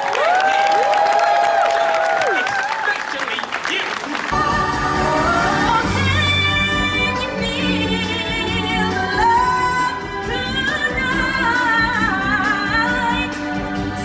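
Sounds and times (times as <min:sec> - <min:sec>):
live music accompaniment: 0:04.3 - 0:14.0.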